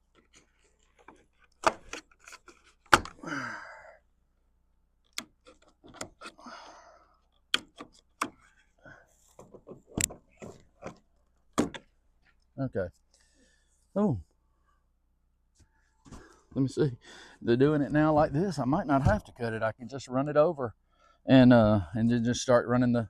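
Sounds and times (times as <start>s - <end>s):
wooden boards knocking and clattering: 9.4s - 11.9s.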